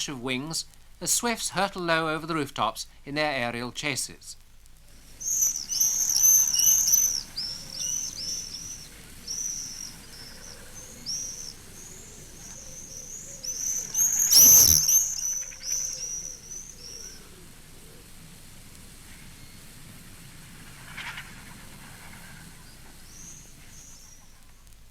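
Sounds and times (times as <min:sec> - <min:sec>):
birds rushing pass: 0:04.9 - 0:17.1
swifts screaming: 0:05.0 - 0:17.2.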